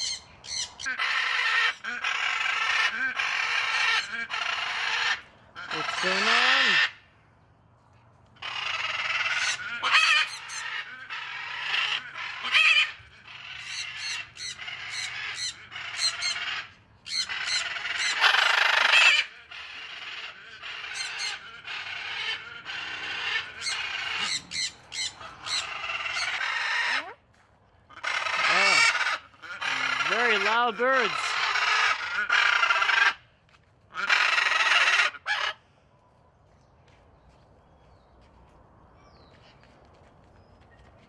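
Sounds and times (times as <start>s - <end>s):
parrots squawking: 0.0s - 7.0s, 8.4s - 27.2s, 27.9s - 33.2s, 33.9s - 35.6s.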